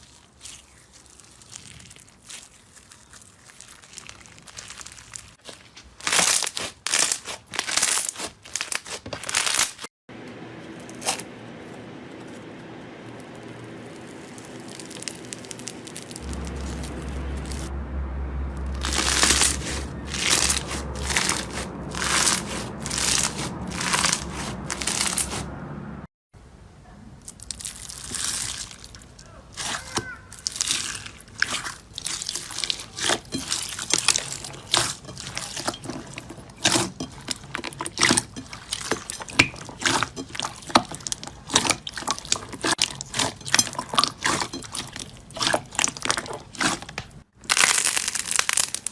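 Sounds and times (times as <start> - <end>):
slime squishing: 0.0 - 9.8, 10.8 - 17.7, 18.6 - 25.5, 27.2 - 48.9
low steady hum: 10.1 - 29.6.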